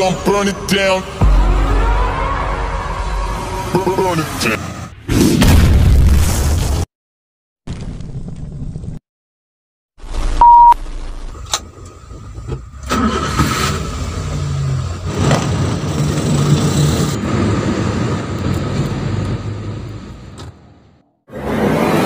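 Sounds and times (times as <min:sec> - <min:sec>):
loud steady beep: 0:10.4 - 0:10.8
engine starting and running: 0:10.9 - 0:22.0.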